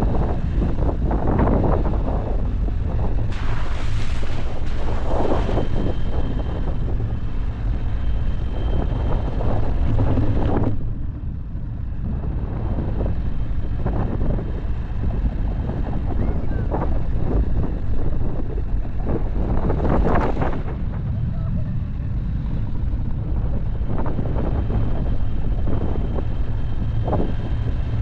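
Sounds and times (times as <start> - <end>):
engine and tyre rumble: 0.0 - 28.0
wind buffeting microphone: 0.0 - 28.0.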